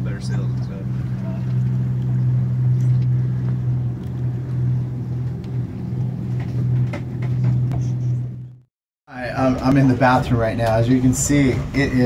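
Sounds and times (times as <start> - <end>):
water wash: 0.0 - 7.2
boat engine humming: 0.0 - 12.0.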